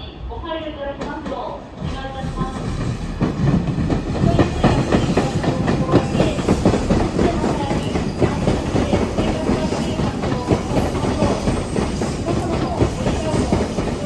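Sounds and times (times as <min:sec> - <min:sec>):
train rumble: 0:00.0 - 0:14.0
train wheels clacking over rail joints: 0:01.0 - 0:14.0.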